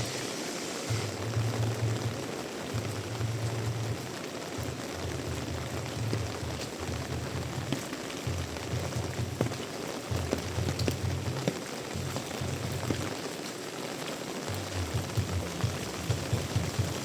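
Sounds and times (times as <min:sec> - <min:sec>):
heavy rain pouring: 0:00.0 - 0:17.0
drops ticking on a surface: 0:01.3 - 0:13.1.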